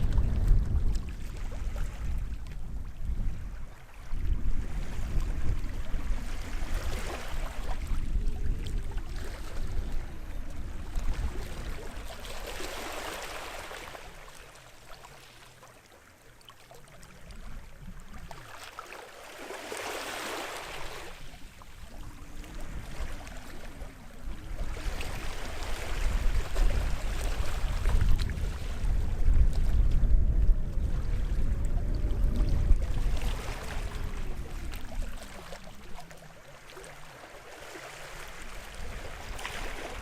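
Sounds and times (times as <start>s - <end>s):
small waves washing on shore: 0.0s - 40.0s
low rumble: 27.7s - 35.6s.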